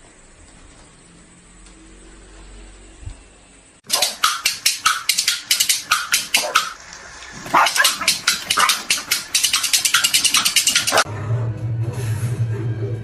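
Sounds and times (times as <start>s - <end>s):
dog barking rapidly: 3.9s - 11.1s.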